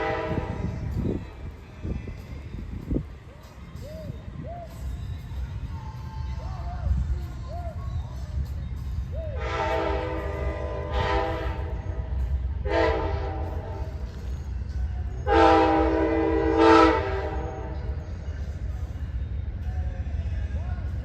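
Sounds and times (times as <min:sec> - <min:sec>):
locomotive air horn blasts: 0:00.0 - 0:01.2, 0:09.3 - 0:14.1, 0:15.2 - 0:18.0.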